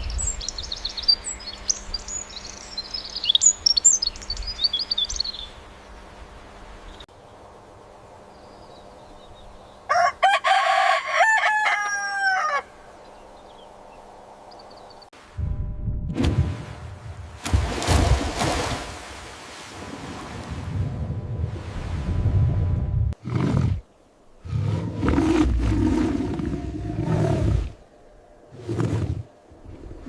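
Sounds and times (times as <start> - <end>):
small birds chirping: 0.0 - 6.0
rooster crowing: 9.9 - 12.8.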